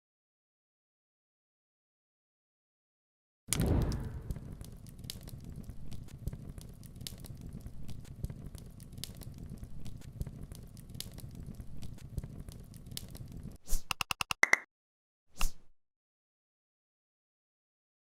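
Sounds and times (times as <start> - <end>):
low rumble: 3.5 - 10.6
sharp crackles: 3.5 - 13.6.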